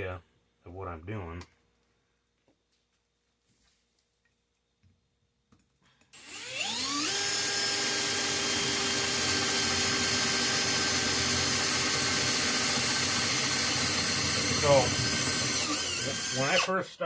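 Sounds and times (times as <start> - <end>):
electric drill whining: 6.2 - 16.7.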